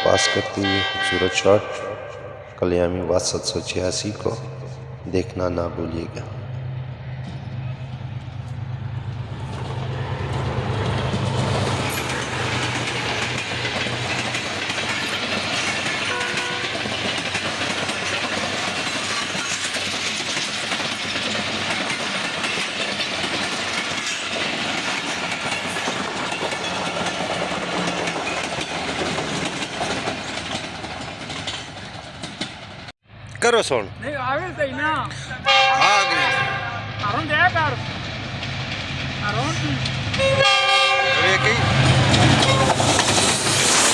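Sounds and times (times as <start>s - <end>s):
locomotive engine hum: 3.2s - 43.9s
train wheels clattering on track: 6.5s - 32.9s, 37.0s - 43.9s.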